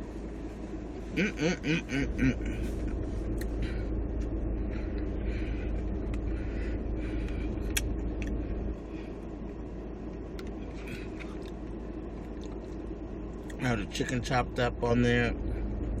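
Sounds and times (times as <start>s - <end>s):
steady low rumble: 0.0s - 16.0s
chewing and crunching food: 10.2s - 13.6s.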